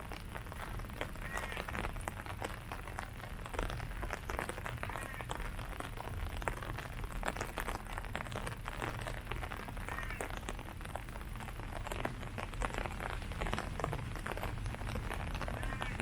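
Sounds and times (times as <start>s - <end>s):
low steady rumble: 0.0s - 16.0s
rain pattering on leaves: 0.0s - 16.0s.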